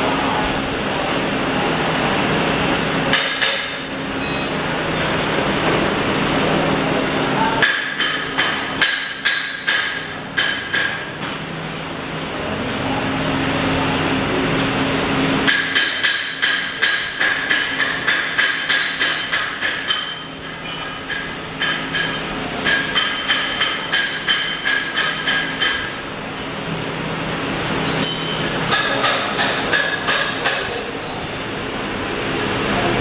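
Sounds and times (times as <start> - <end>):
steady hum and hiss: 0.0 - 33.0
hammer striking metal: 3.1 - 4.5, 7.6 - 11.2, 15.5 - 26.0, 28.0 - 30.8.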